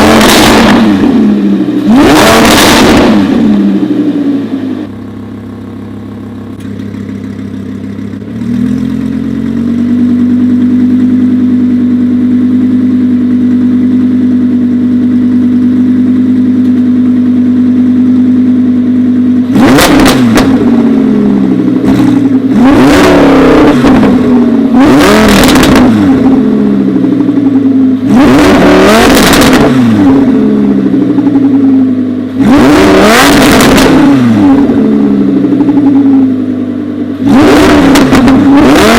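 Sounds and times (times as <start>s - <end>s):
sharp engine revs: 0.0s - 3.9s, 19.5s - 21.0s, 21.8s - 26.8s, 28.0s - 30.5s, 32.4s - 35.2s, 37.2s - 38.9s
car engine idling: 0.0s - 38.9s.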